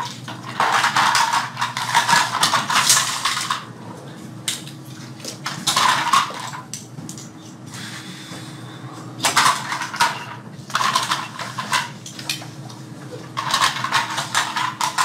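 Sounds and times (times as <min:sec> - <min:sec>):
small plastic parts clattering: 0:00.4 - 0:03.6, 0:13.4 - 0:15.0.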